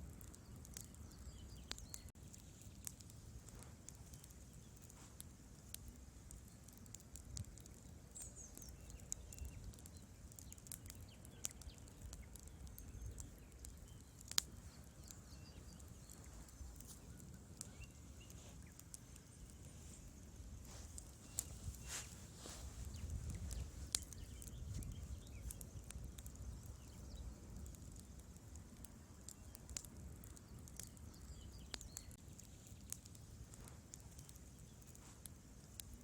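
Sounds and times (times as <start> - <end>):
fire low rumble: 0.0 - 36.0
logs crackling and popping: 0.0 - 36.0.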